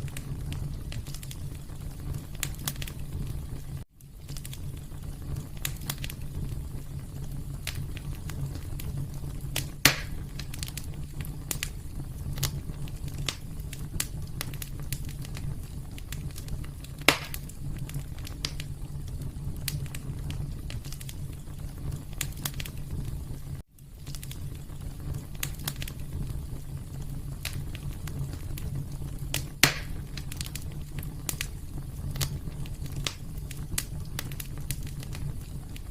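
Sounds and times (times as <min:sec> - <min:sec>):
fire popping and snapping: 0:00.0 - 0:35.9
wood fire crackling: 0:00.0 - 0:35.9.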